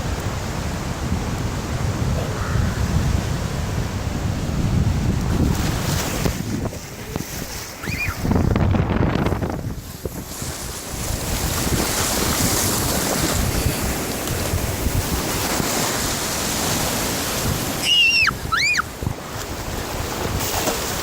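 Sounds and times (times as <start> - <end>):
ocean surf on a beach: 0.0 - 21.0
wind buffeting microphone: 0.0 - 21.0
short high-pitched calls: 17.8 - 18.8.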